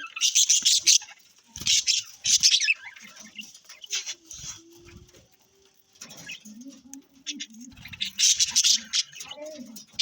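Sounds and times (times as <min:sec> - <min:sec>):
budgerigars chirping: 0:00.0 - 0:04.2, 0:07.2 - 0:09.4.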